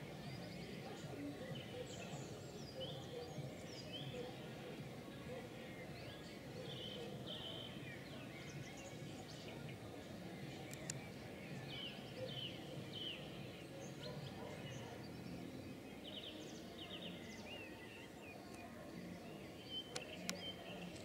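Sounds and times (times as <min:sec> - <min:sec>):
birds chirping: 0:00.0 - 0:21.0
sharp clicks: 0:10.6 - 0:11.0.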